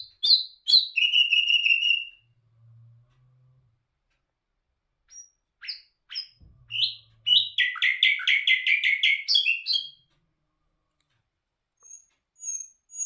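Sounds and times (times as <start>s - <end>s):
nightingale singing: 0.0s - 2.2s, 5.1s - 10.0s, 11.8s - 13.0s.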